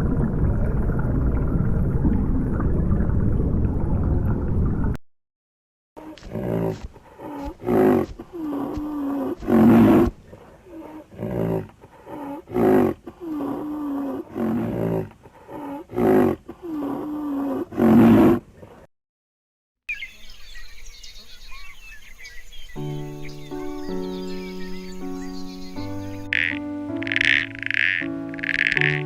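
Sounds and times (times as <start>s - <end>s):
birds chirping: 6.0s - 10.9s, 19.9s - 29.0s
lion roaring and grunting: 6.0s - 18.5s.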